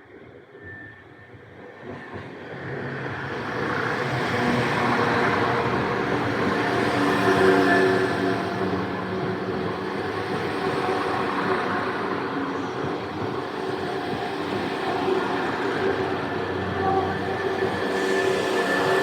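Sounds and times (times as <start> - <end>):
train wheels on rails: 1.8 - 19.0.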